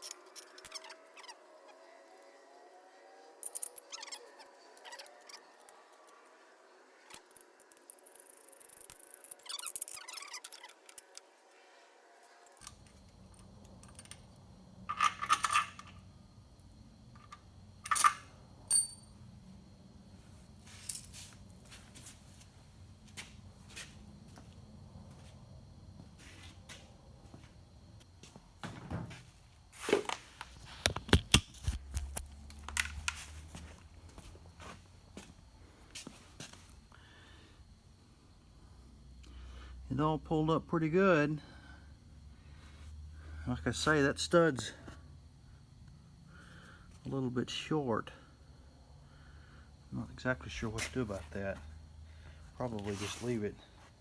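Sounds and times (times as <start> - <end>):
metal tools clinking: 14.9 - 16.0, 17.2 - 19.2, 20.7 - 21.4
ringing metallic clink: 17.9 - 19.1.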